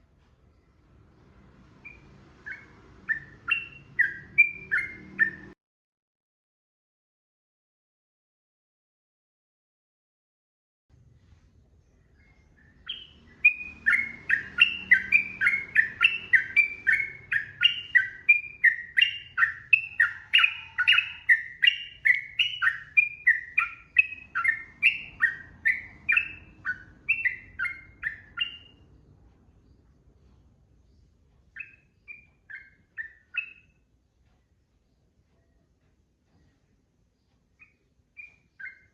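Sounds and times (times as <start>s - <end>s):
bird singing whistled notes: 1.8s - 5.6s, 12.2s - 28.8s, 31.5s - 33.8s, 37.6s - 38.9s.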